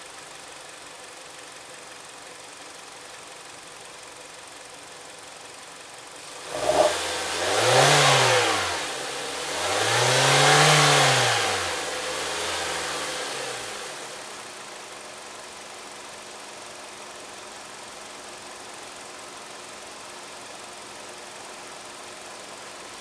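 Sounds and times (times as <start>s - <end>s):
engine starting and revving: 6.4s - 14.0s.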